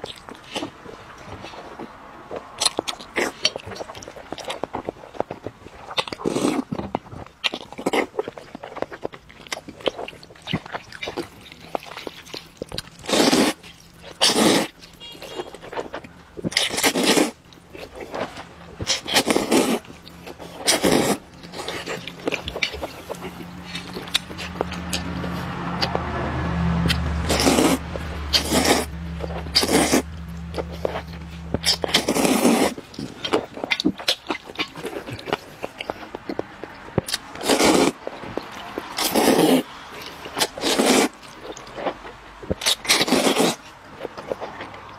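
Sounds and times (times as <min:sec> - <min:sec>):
chewing clicks: 0:00.0 - 0:44.9
loud slurps: 0:10.1 - 0:42.0, 0:42.6 - 0:44.9.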